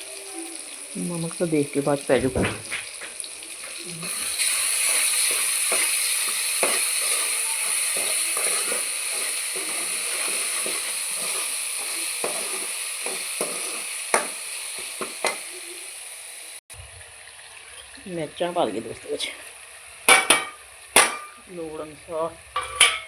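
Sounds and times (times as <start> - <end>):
food sizzling in a pan: 0.0 - 23.0
spoon scraping a pan: 2.7 - 15.9, 22.6 - 23.0
spoon tapping a pan: 4.8 - 15.6, 20.1 - 21.4, 22.6 - 23.0.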